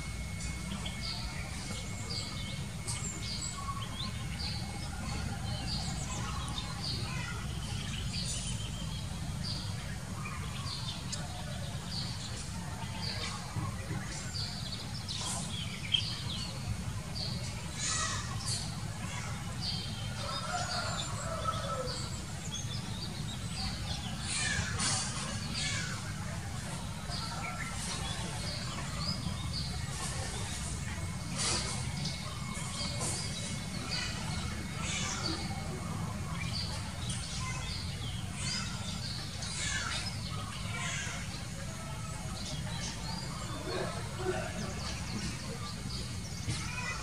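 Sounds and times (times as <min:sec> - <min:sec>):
high bird chirps and calls: 0:00.8 - 0:30.7.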